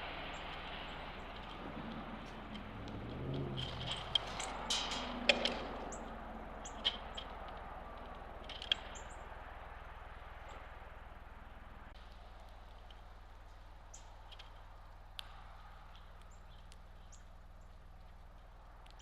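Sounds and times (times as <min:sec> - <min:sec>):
low rumble: 0:00.0 - 0:12.0
small birds chirping: 0:00.0 - 0:19.0.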